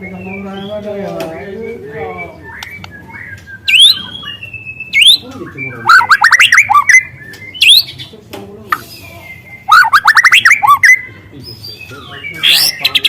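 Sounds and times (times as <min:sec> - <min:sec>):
bird singing whistled phrases: 0:01.9 - 0:08.0, 0:08.7 - 0:13.0.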